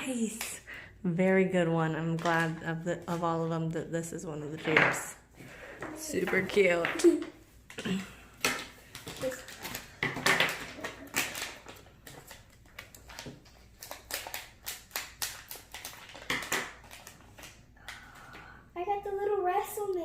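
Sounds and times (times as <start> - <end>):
plastic packaging rustling: 7.9 - 18.2
plastic toys clicking: 8.4 - 18.1.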